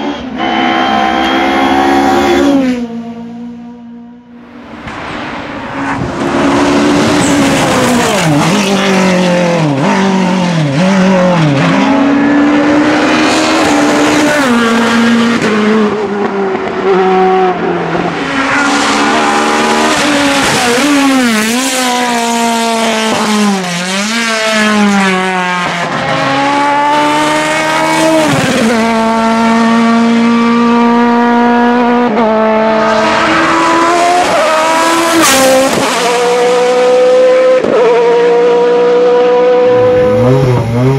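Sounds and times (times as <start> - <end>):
race car engine at full throttle: 0.0 - 40.9.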